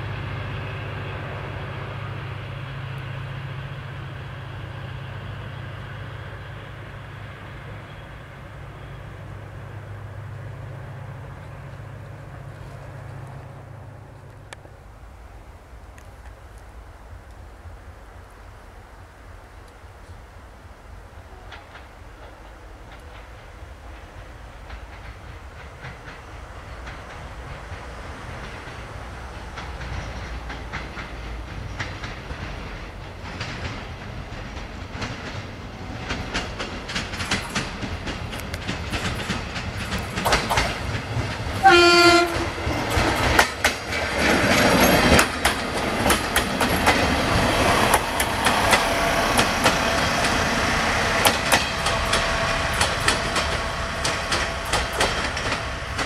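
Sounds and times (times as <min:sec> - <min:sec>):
diesel passenger train passing: 0:00.0 - 0:56.0
wheels clattering over rail joints: 0:21.4 - 0:56.0
train horn blast: 0:41.6 - 0:42.6, 0:49.0 - 0:55.9.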